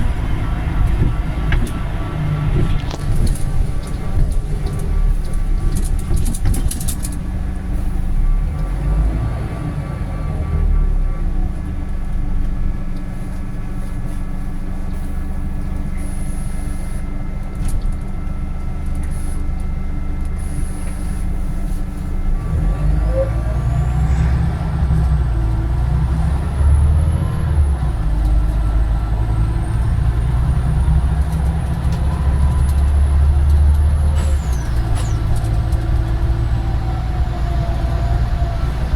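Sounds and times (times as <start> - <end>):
bus engine running: 0.0 - 38.9
accelerating engine whine: 22.3 - 38.9.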